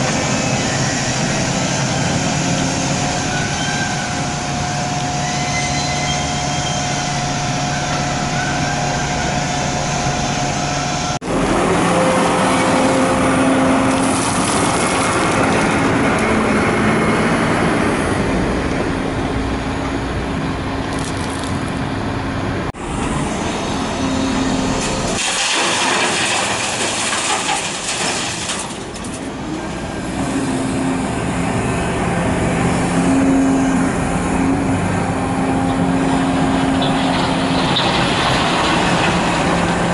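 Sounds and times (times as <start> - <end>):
excavator diesel engine droning: 0.0 - 39.9.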